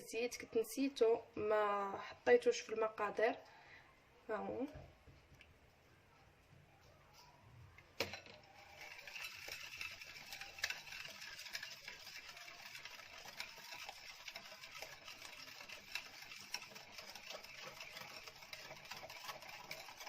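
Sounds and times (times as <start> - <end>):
electric hand mixer whirring: 8.0 - 20.0.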